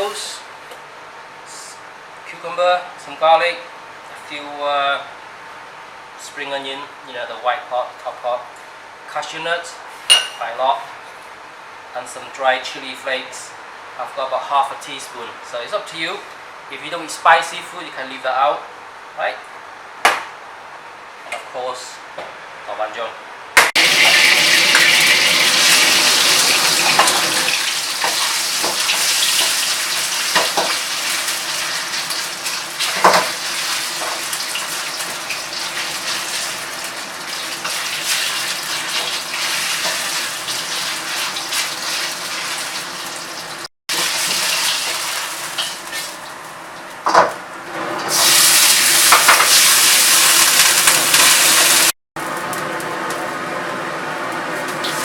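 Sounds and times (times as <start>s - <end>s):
food sizzling in oil: 23.8s - 46.5s, 48.1s - 53.4s, 54.6s - 55.0s.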